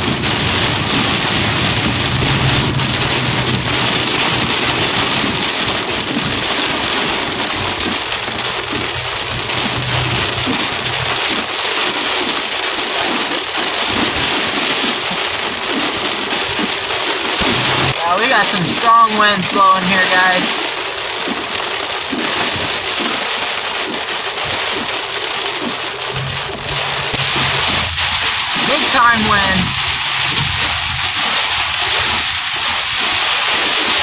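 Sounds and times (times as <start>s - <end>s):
low vehicle hum: 0.0s - 18.2s, 23.8s - 32.8s
heavy rain and wind: 0.0s - 34.0s.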